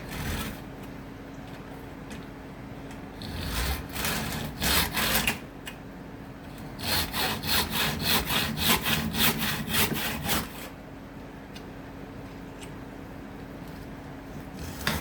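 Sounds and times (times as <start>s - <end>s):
wood being hand-sawn: 0.0s - 0.6s, 3.2s - 5.4s, 6.8s - 10.7s, 14.5s - 15.0s.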